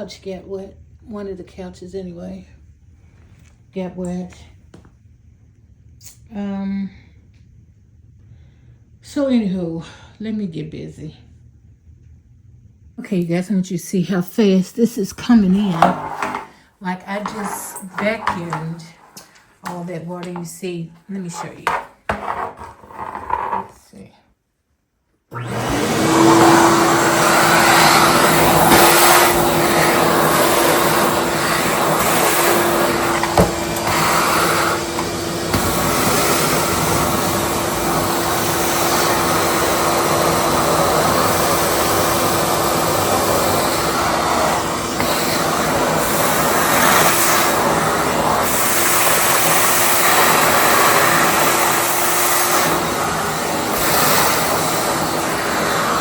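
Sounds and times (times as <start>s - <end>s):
wet vacuum motor whine: 25.3s - 56.0s.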